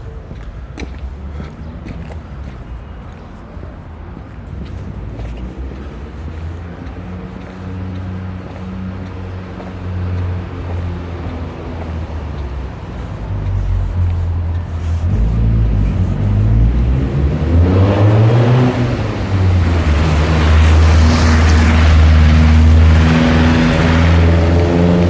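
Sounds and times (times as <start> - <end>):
road and wind noise: 0.0 - 25.0
car engine running: 13.3 - 25.0.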